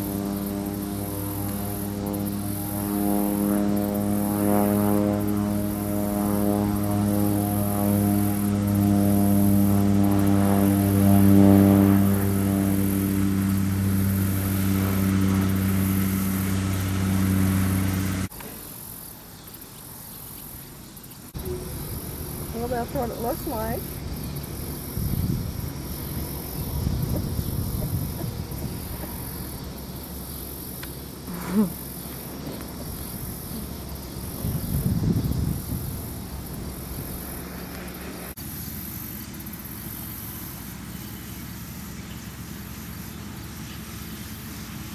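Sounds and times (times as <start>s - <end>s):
faint insects chirring: 0.0s - 44.9s
tractor engine running: 8.3s - 18.4s, 21.4s - 34.6s.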